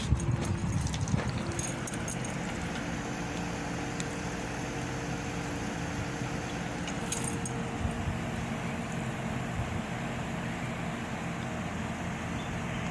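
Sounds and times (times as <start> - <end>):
air conditioner humming: 0.0 - 10.0.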